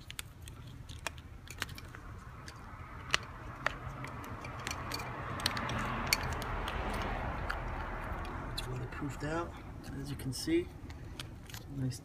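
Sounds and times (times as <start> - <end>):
small rubber clicks: 0.0 - 8.9.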